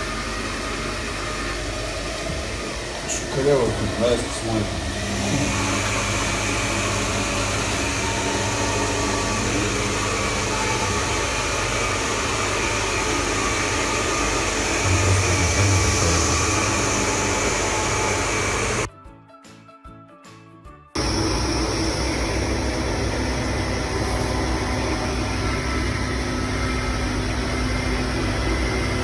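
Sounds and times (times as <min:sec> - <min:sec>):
robot vacuum cleaner whirring: 0:00.0 - 0:18.9.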